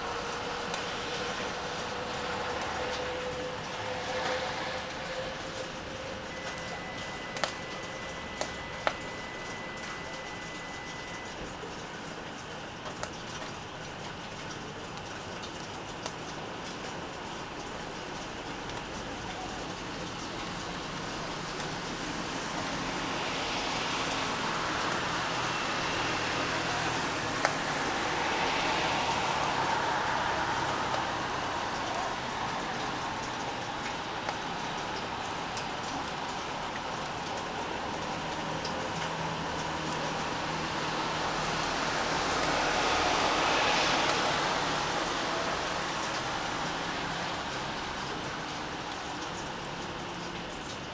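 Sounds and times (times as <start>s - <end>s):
steady rain: 0.0s - 50.9s
tyre hiss on wet road: 18.0s - 50.3s
vehicle engine hum: 18.2s - 50.8s.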